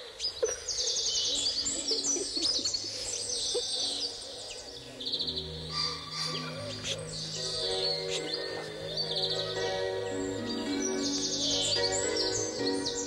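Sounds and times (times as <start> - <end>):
birds chirping: 0.0 - 13.0
music with low tones: 4.4 - 13.0.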